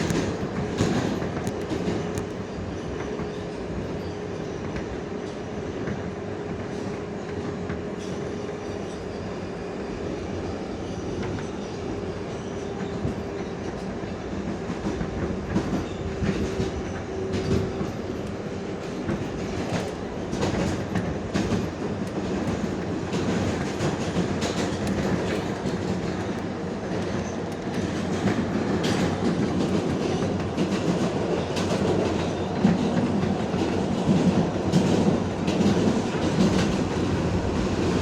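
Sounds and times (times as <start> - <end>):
subway train rumble and hum: 0.0 - 38.0
wheels clacking over rail joints: 12.4 - 38.0.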